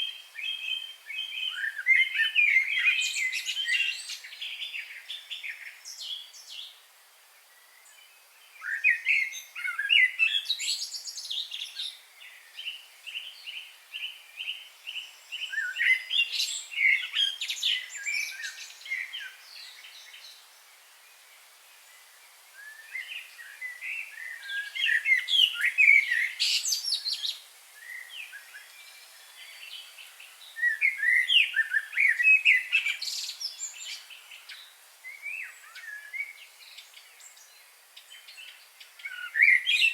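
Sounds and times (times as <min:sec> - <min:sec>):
wild birds singing and chirping: 0:00.0 - 0:39.9.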